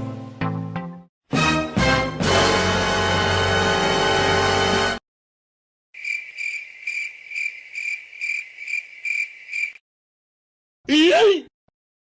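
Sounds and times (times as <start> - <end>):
cricket chirping: 6.0 - 9.8.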